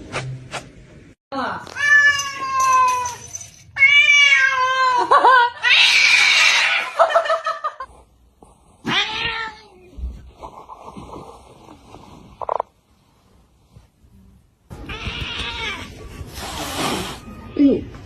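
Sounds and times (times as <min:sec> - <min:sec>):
cat hissing: 0:15.6 - 0:17.5.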